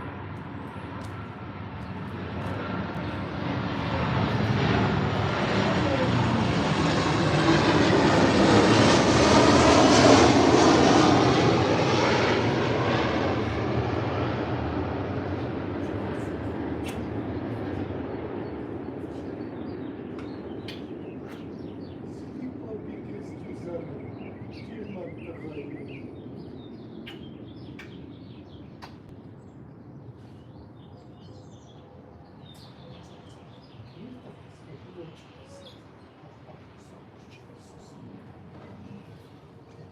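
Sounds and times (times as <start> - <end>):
aircraft flying past: 0.0 - 39.9
small songbirds chirping: 18.4 - 22.5, 23.1 - 36.3.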